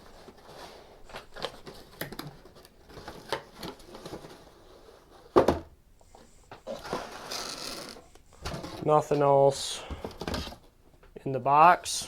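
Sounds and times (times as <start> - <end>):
cardboard packaging rustling: 0.0 - 5.4.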